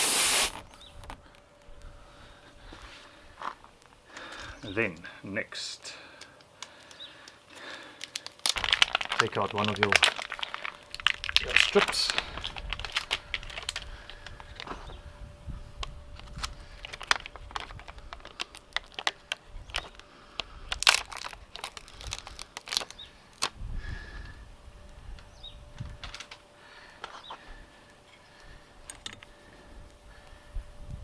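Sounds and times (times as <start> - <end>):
repair kit clicks and crinkling: 6.1 - 15.0, 15.8 - 23.6, 25.2 - 29.4.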